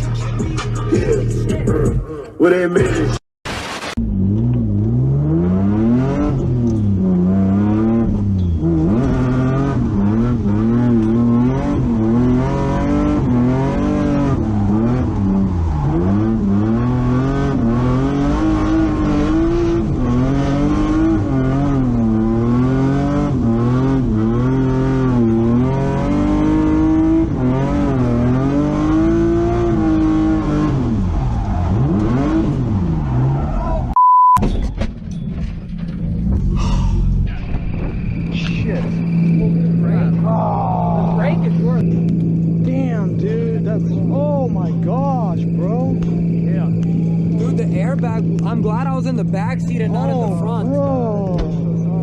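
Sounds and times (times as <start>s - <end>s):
car engine revving hard: 4.0s - 33.9s.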